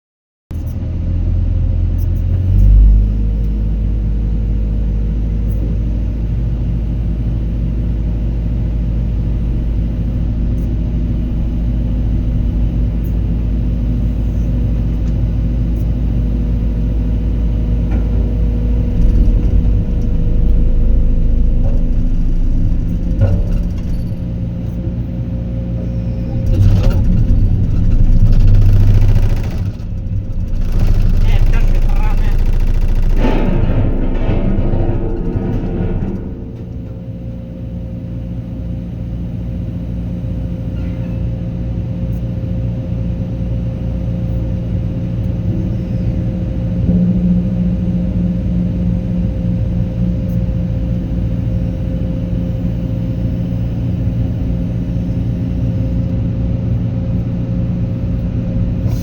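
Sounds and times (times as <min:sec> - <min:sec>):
diesel engine running: 0:00.5 - 0:59.0
knocks: 0:26.4 - 0:37.3.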